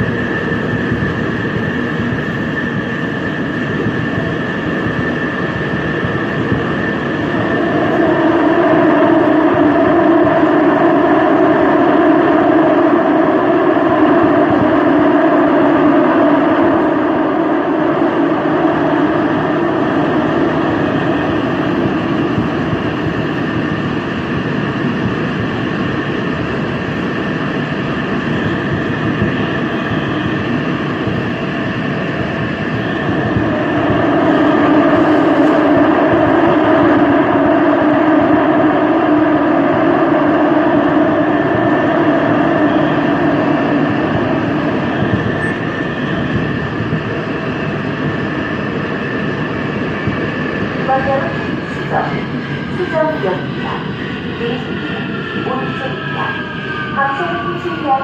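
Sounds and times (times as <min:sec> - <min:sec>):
subway train rumbling: 0:00.0 - 0:58.0.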